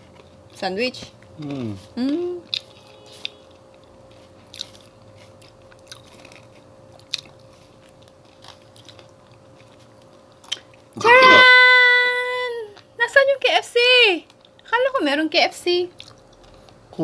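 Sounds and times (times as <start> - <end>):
quiet chewing: 0.0 - 11.0, 15.9 - 16.8
faint steady hum: 0.0 - 17.0
sharp crunches of crispy food: 2.4 - 11.6.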